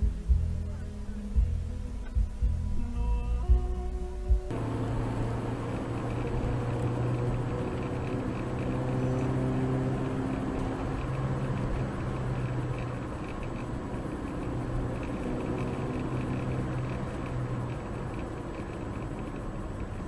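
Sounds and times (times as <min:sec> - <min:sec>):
car engine hum: 0:00.0 - 0:20.0
road noise: 0:00.0 - 0:20.0.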